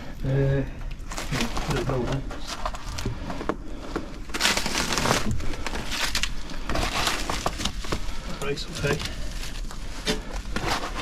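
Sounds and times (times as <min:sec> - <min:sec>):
crunching and scraping of concrete debris: 0:00.0 - 0:11.0.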